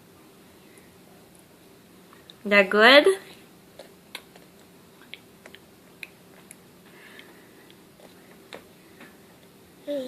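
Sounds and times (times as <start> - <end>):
faint chewing and mouth clicks: 2.1 - 2.4, 3.7 - 9.6.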